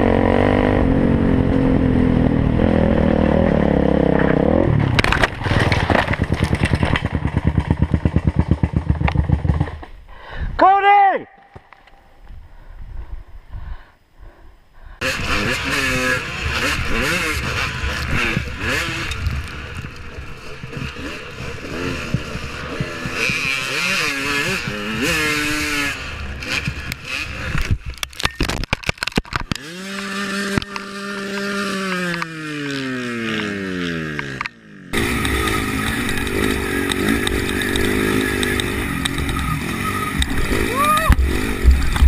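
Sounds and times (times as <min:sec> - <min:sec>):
dirt bike engines revving: 0:00.0 - 0:09.9, 0:15.0 - 0:28.3, 0:29.5 - 0:42.0
wind noise: 0:12.0 - 0:14.9.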